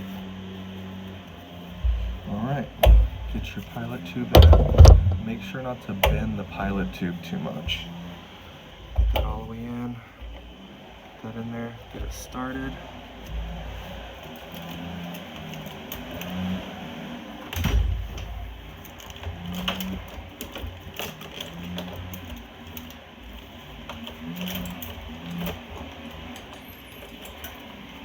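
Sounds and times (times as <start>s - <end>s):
louder knock: 4.4s - 5.3s.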